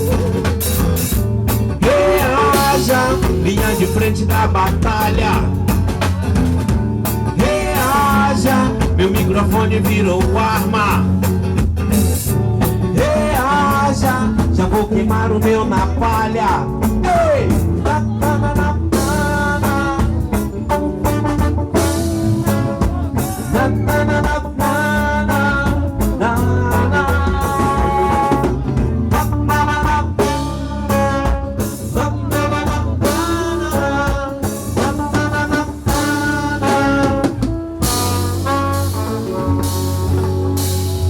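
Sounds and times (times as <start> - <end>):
bass: 0.0 - 41.0
drum kit: 0.0 - 41.0
reggae band playing: 0.0 - 41.0.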